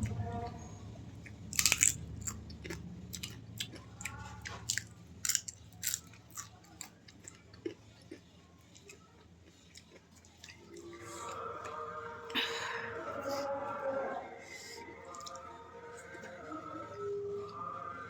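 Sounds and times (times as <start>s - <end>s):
faint low hum: 0.0s - 18.0s
chewing crunchy food: 1.2s - 12.2s, 14.5s - 17.6s.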